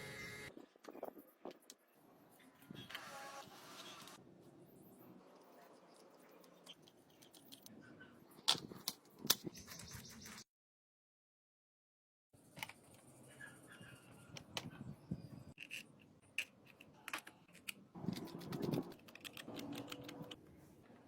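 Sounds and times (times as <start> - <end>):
small hard parts clicking: 15.6 - 20.4.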